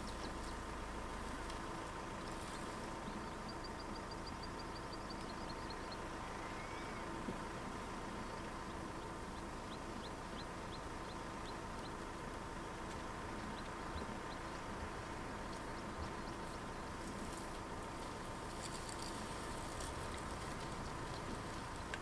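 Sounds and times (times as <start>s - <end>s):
outdoor background noise: 0.0s - 22.0s
small bird calling: 2.0s - 7.4s.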